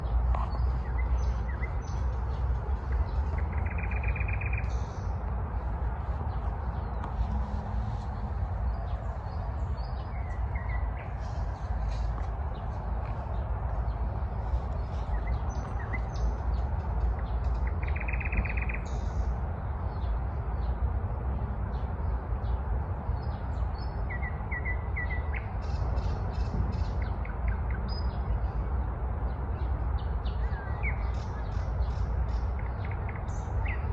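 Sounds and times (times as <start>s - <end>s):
nightingale singing: 0.0s - 5.2s, 17.5s - 19.2s.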